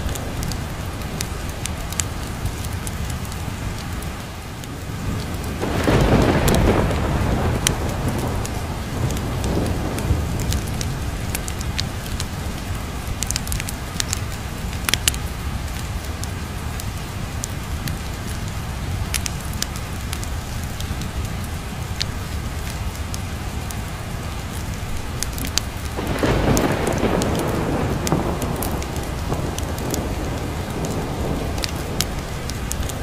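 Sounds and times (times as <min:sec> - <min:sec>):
thunder rumbling: 0:00.0 - 0:03.9, 0:04.7 - 0:21.3, 0:24.5 - 0:33.0
fireplace crackling and popping: 0:00.0 - 0:21.3, 0:24.4 - 0:33.0
steady rain: 0:00.0 - 0:33.0.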